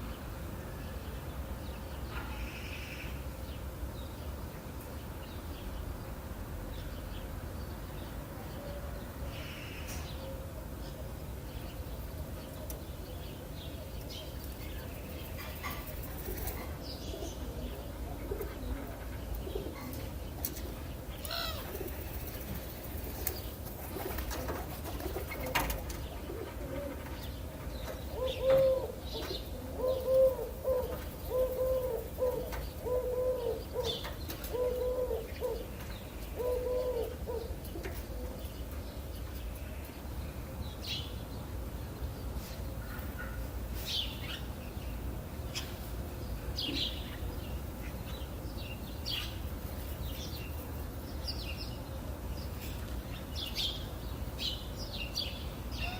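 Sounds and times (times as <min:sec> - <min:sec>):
small birds chirping: 0:00.0 - 0:55.9
dove cooing: 0:15.4 - 0:20.1, 0:23.9 - 0:27.2, 0:28.1 - 0:38.5.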